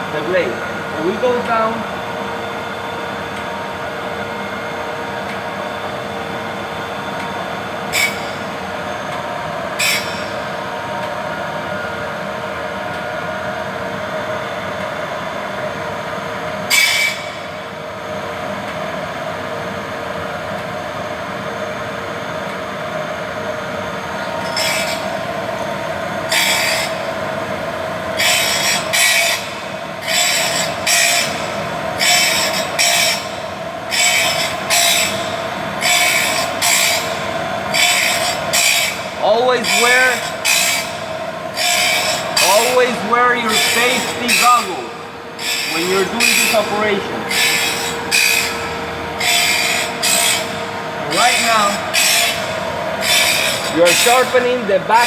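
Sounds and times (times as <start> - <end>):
sharpening machine humming: 0.0 - 14.9, 15.6 - 18.6, 22.4 - 55.0
grinding stone on saw teeth: 24.4 - 25.2, 26.3 - 27.1, 28.2 - 55.0.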